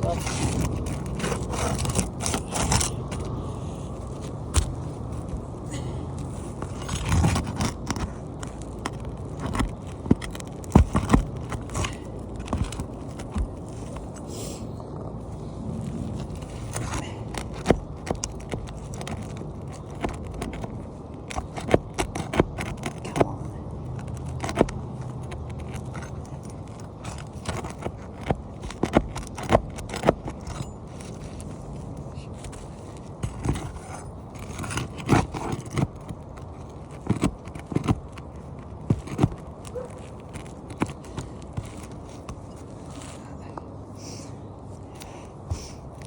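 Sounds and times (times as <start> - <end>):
hand tool scraping roof shingles: 0.0 - 14.7, 15.4 - 43.4
steady low rumble: 0.0 - 21.3.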